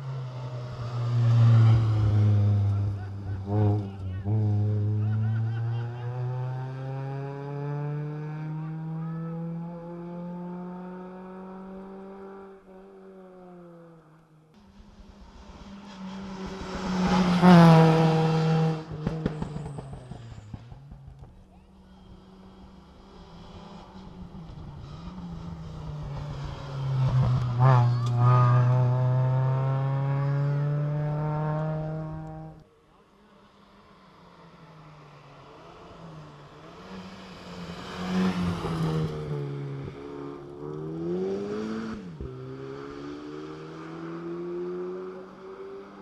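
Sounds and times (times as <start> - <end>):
rally car engine pulling hard: 14.7 - 32.6, 35.8 - 45.0.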